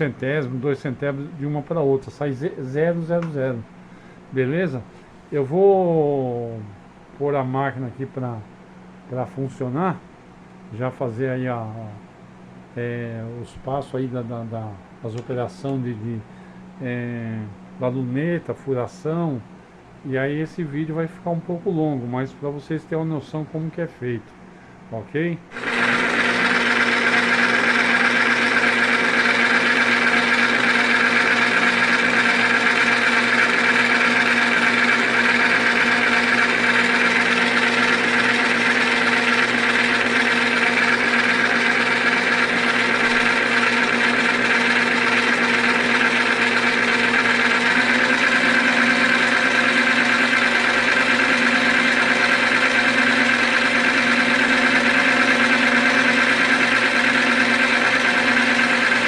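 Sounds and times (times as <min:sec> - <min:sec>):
lathe motor humming and whining: 0:25.5 - 0:59.0.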